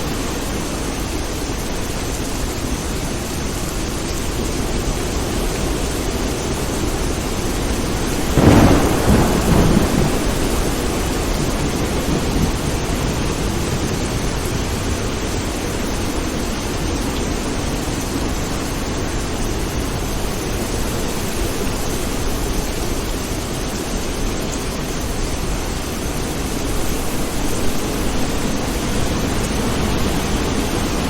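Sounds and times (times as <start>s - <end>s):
steady rain: 0.0s - 31.0s
thunder clap and rumble: 6.2s - 16.3s.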